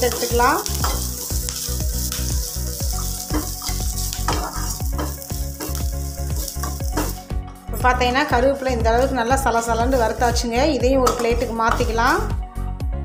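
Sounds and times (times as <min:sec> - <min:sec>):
leaves sizzling in hot oil: 0:00.0 - 0:07.3
spatula stirring in pan: 0:00.0 - 0:07.3.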